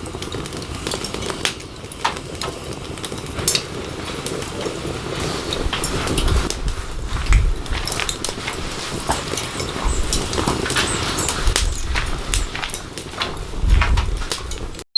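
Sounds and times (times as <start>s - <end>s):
wood fire crackling: 0.0s - 14.9s
low rumbles: 5.4s - 14.8s.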